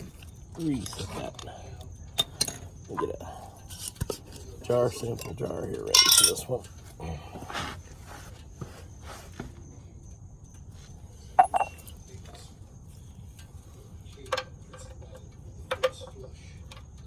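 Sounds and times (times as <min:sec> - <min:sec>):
low steady hum: 0:00.0 - 0:17.0
metallic clinks and knocks: 0:03.7 - 0:06.8, 0:11.4 - 0:12.2, 0:14.2 - 0:17.0.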